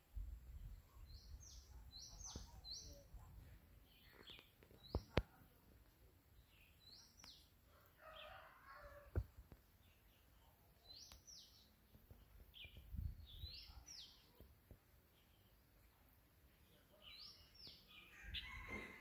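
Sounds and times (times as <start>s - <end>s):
small bird chirping: 0.6s - 5.7s, 9.8s - 18.8s.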